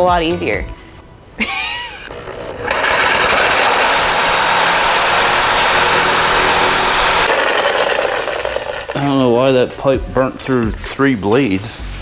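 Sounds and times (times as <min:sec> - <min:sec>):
power saw grinding through metal pipe: 0:02.1 - 0:09.4.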